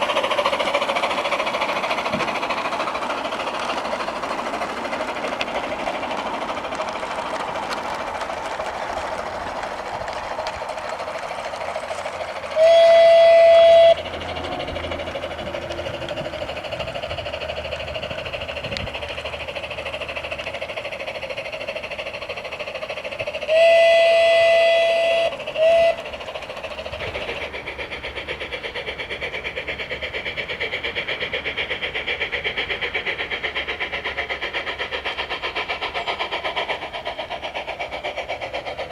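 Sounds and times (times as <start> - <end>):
electronic steam chuffing: 0.0 - 38.9
electronic train whistle: 12.6 - 14.8, 23.5 - 26.0.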